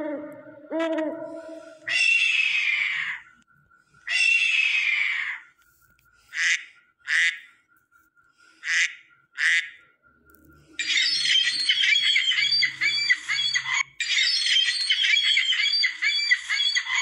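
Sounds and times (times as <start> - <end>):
bird harsh calls: 0.0 - 5.6, 6.2 - 7.7, 10.6 - 17.0.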